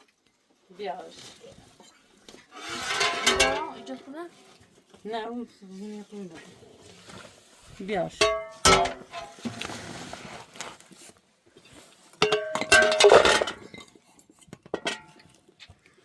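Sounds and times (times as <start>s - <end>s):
dishes and pots clattering: 1.8s - 4.1s, 8.1s - 9.7s, 12.2s - 15.4s.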